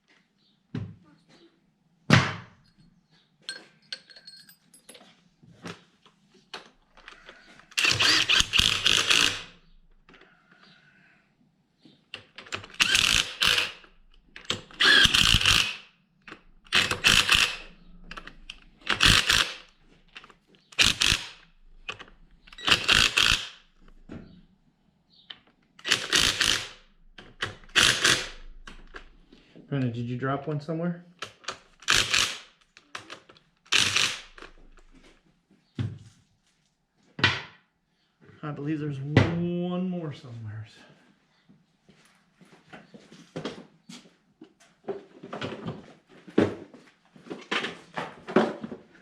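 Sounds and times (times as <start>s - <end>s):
impact wrench driving bolts: 7.8s - 9.6s, 12.4s - 23.6s, 25.8s - 29.0s, 31.2s - 34.6s.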